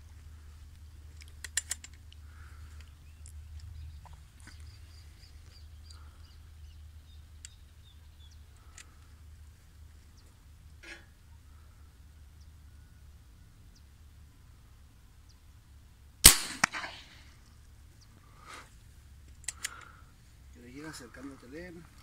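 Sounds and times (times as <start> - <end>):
low steady rumble: 0.0 - 22.0
sharp clicks: 1.2 - 2.2, 7.4 - 7.6, 19.3 - 20.0
small bird chirping: 2.0 - 9.2.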